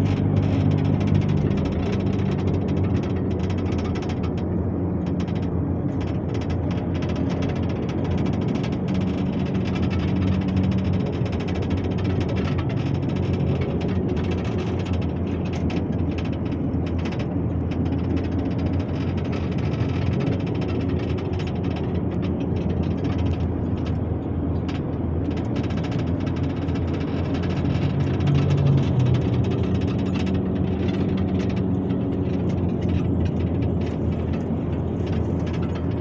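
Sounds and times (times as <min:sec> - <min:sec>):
ride vehicle engine hum: 0:00.0 - 0:36.0.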